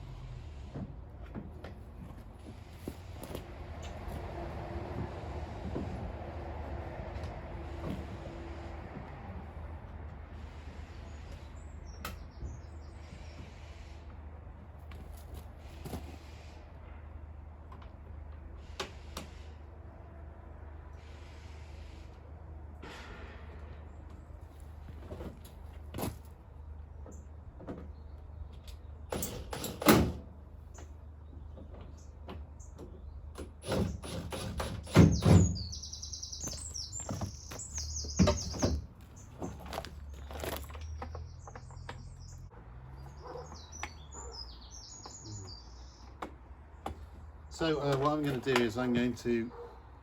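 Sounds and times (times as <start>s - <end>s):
birds twittering: 10.8s - 13.8s, 34.9s - 47.8s.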